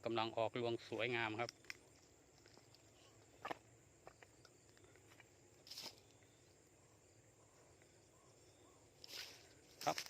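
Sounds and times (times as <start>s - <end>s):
short rustle: 9.0s - 10.0s.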